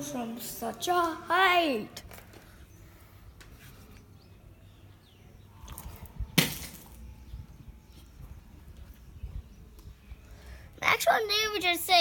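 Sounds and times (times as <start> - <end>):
plastic bottle hitting ground: 6.3 - 7.0.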